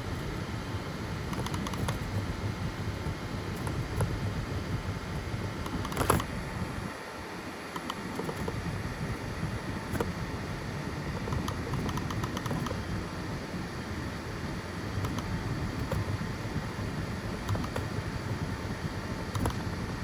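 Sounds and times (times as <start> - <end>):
printer fans and motors humming: 0.0 - 20.0
small ticks and clicks: 1.3 - 2.2, 11.1 - 12.8, 15.0 - 16.0, 17.4 - 17.9, 19.3 - 19.8.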